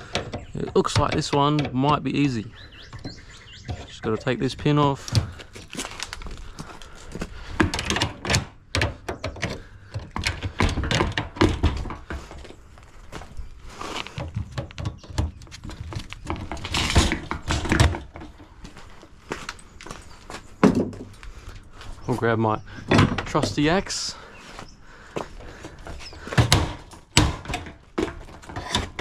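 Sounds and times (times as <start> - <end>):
tools knocking and clanking on metal: 0.0 - 5.7, 7.5 - 12.5, 14.2 - 18.6, 20.6 - 21.1, 22.8 - 24.2, 25.4 - 29.0.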